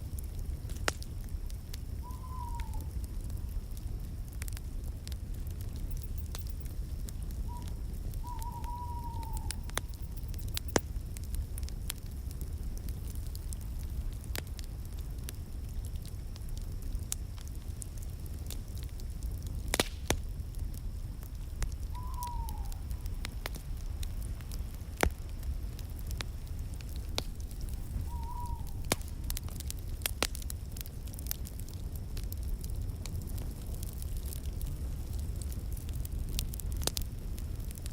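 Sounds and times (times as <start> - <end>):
wood fire crackling and popping: 0.0 - 37.9
faint falling chirps: 7.5 - 10.5, 27.4 - 29.1.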